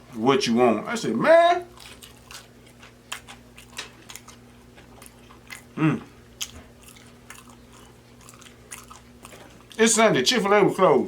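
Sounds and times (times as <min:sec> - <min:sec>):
faint electrical hum: 0:00.0 - 0:11.0
person chewing with wet smacks: 0:01.7 - 0:10.9
person humming mm: 0:05.8 - 0:06.1.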